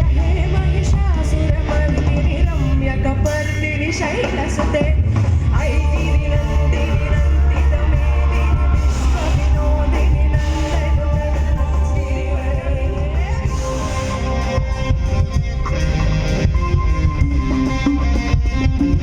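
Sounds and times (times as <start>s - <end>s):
person singing: 0.0s - 14.9s
heavy bass: 0.0s - 19.0s
live band playing: 0.0s - 19.0s.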